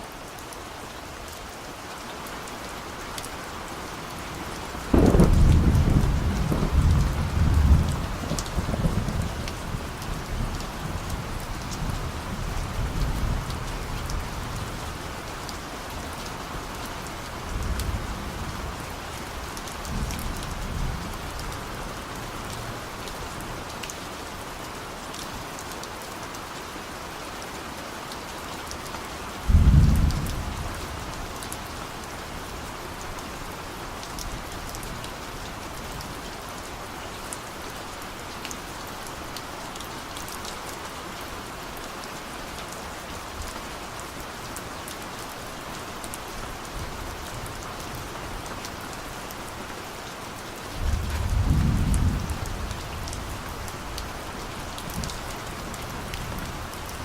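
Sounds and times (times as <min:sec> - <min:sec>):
heavy rain falling: 0:00.0 - 0:57.0
thunder rumbling: 0:04.9 - 0:09.8, 0:29.5 - 0:30.8, 0:50.8 - 0:53.5.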